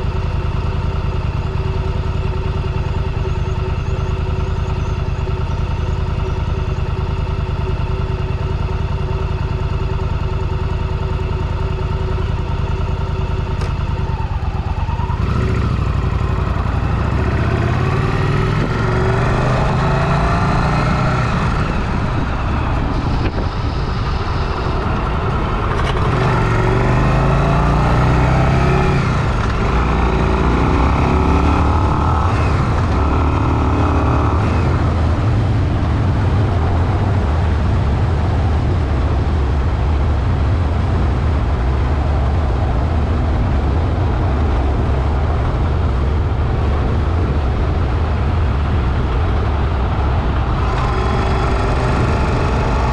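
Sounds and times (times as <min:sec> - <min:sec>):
motorcycle engine idling: 0:00.0 - 0:20.1, 0:44.6 - 0:52.9
motorcycle accelerating: 0:00.0 - 0:52.9.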